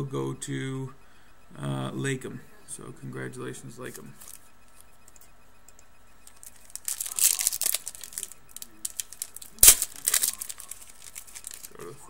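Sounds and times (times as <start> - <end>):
wrapper crinkling: 6.2 - 11.9.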